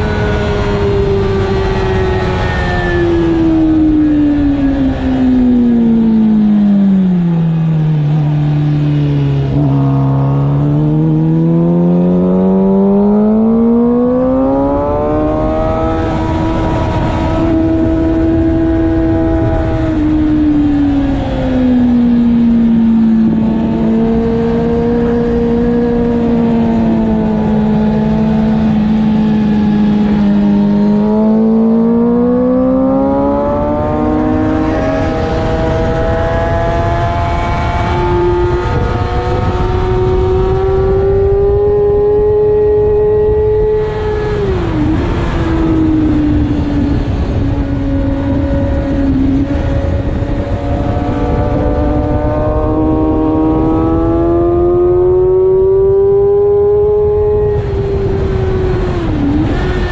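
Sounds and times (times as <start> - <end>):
motorcycle engine at speed: 0.0 - 59.9.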